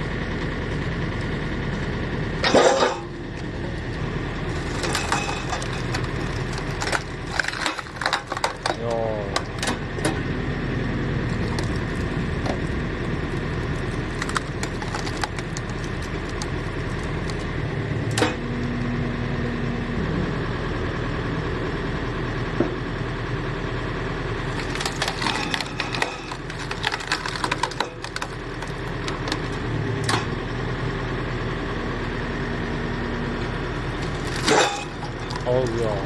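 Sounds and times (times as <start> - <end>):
log splitter engine running: 0.0 - 36.0
wood cracking and splintering: 2.4 - 10.3, 11.0 - 18.4, 24.4 - 30.3, 33.8 - 36.0.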